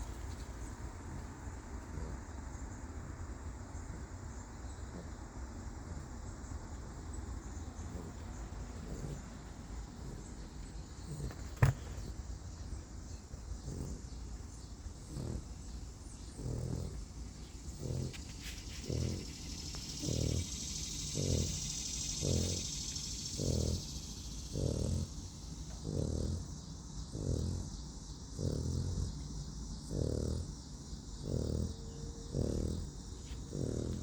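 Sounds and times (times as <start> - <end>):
dog snoring: 1.1 - 2.3, 7.8 - 12.1, 13.3 - 34.0.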